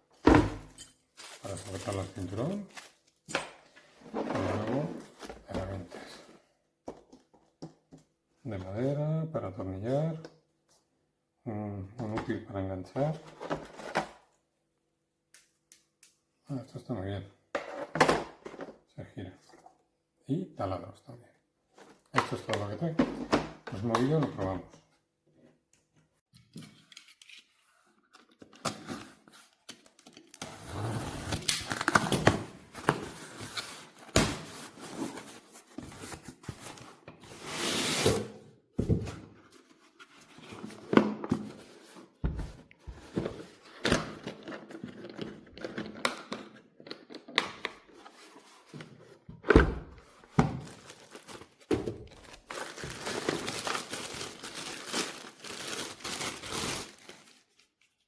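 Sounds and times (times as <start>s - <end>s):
plastic packaging crinkling: 50.6s - 57.6s.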